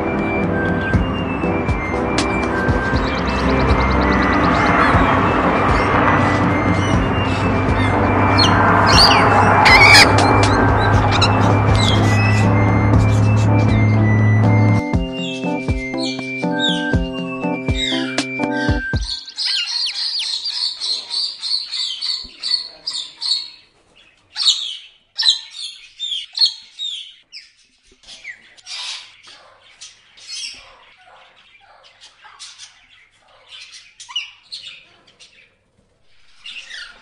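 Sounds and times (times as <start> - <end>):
parrot chirping and squawking: 5.7 - 13.8, 17.8 - 37.0.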